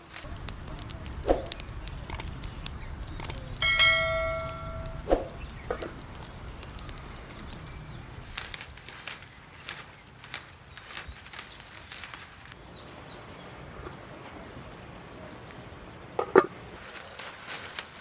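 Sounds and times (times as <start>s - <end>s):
light clicks: 0.1s - 12.6s
small metallic bell ring: 3.6s - 5.0s.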